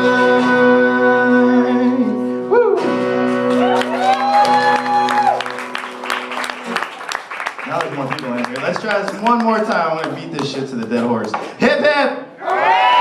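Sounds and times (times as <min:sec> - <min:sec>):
crowd clapping: 0:03.3 - 0:11.6.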